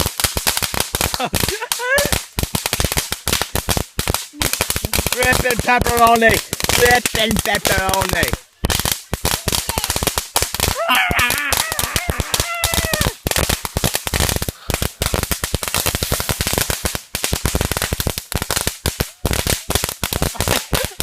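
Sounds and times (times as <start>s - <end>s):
firecrackers popping: 0.0s - 21.0s
person yelling: 1.3s - 2.2s, 9.3s - 10.0s, 10.6s - 13.2s.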